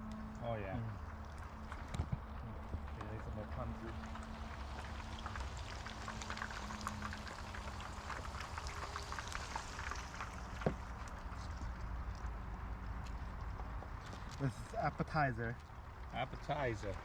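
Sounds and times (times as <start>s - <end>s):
low steady rumble: 0.0s - 17.0s
food crackling in a hot pan: 0.9s - 14.2s.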